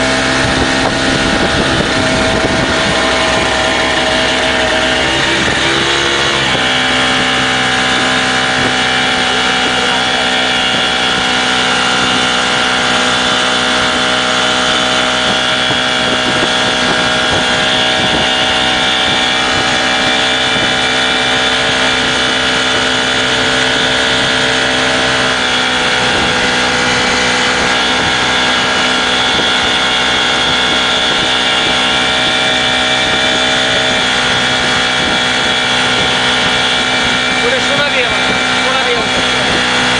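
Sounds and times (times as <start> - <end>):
speedboat engine running: 0.0 - 39.9
wind on microphone: 0.0 - 39.9.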